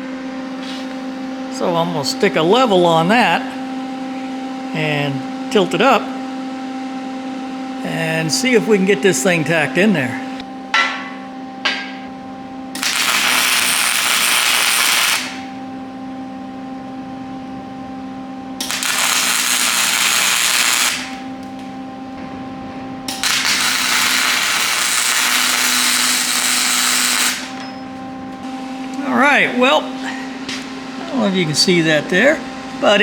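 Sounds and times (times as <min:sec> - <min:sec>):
steady hum: 0:00.0 - 0:33.0
welding arc crackling: 0:12.7 - 0:15.6, 0:18.6 - 0:21.8, 0:23.1 - 0:27.6.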